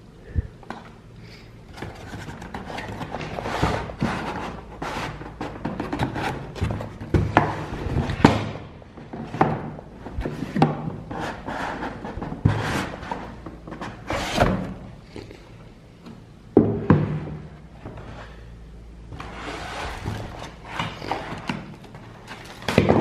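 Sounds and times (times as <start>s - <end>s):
box knocks and thunks: 5.4s - 11.0s, 16.6s - 17.5s, 22.6s - 23.0s.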